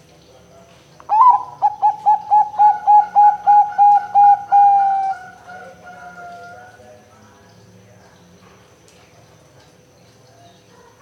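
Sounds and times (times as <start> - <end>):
dove cooing: 1.1 - 6.8.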